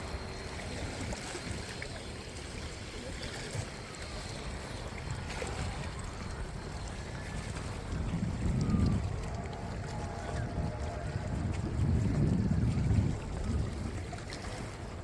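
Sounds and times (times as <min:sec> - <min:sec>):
lake water washing at shore: 0:00.0 - 0:15.0
steady wind: 0:00.0 - 0:15.0.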